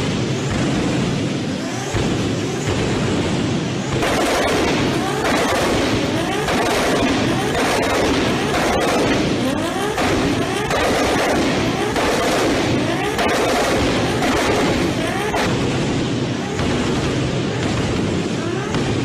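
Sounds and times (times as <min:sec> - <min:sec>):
car engine revving hard: 0:00.4 - 0:19.0
exhaust pops crackling: 0:03.9 - 0:15.6.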